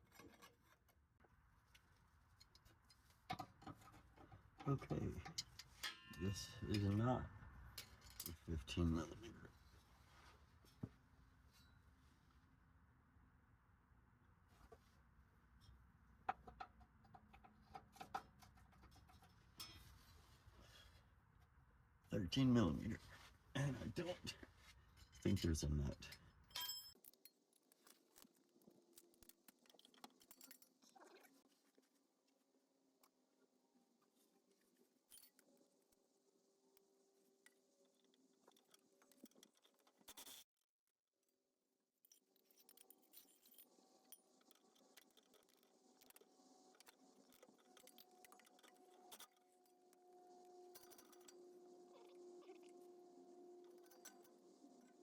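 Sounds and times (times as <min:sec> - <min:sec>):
metallic clink: 0:05.3 - 0:06.9, 0:26.0 - 0:27.4
hand tools clicking and scraping: 0:42.1 - 0:51.9, 0:52.7 - 0:55.0
faint steady hum: 0:43.5 - 0:55.0.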